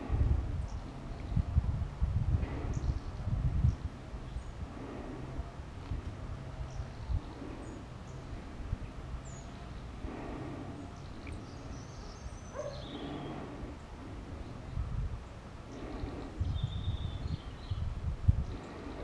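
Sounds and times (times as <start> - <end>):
steady low rumble: 0.0 - 19.0
finch chirping: 11.0 - 13.6.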